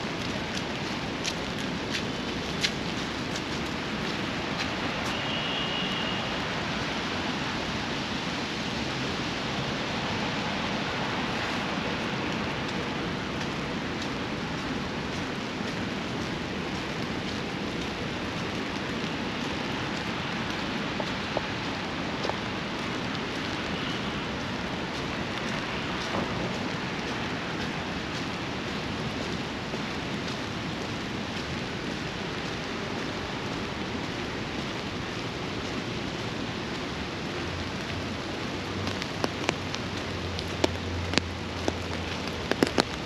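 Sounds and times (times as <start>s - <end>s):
steady rain falling: 0.0s - 43.0s
ticks of raindrops: 0.0s - 43.0s.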